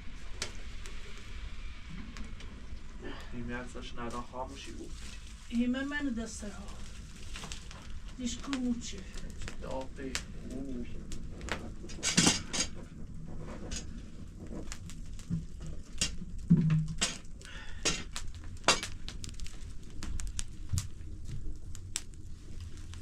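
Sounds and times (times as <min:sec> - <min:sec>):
objects clinking and knocking: 0:11.9 - 0:12.8, 0:15.9 - 0:19.0.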